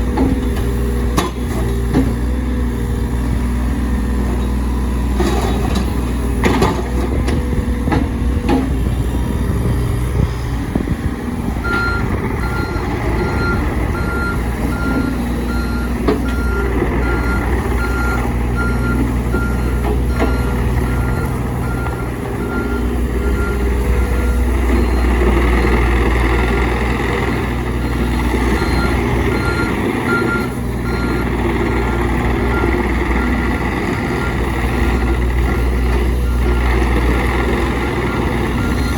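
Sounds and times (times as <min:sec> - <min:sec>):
excavator diesel engine running: 0:00.0 - 0:38.9
travel alarm beeping: 0:11.7 - 0:25.9.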